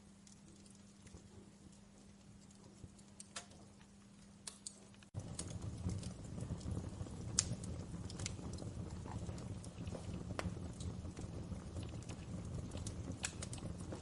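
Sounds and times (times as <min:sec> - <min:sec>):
wood fire crackling: 0:00.0 - 0:14.0
low rush of flames: 0:04.6 - 0:14.0.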